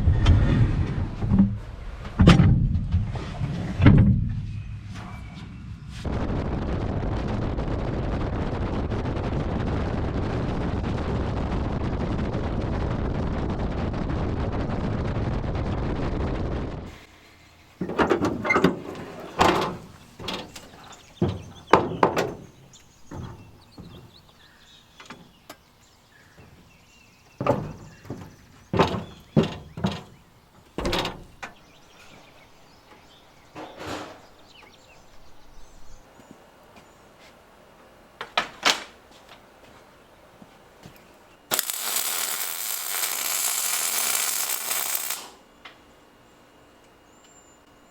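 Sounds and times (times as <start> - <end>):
metal knocks and clanks: 17.8 - 24.2, 27.4 - 31.6.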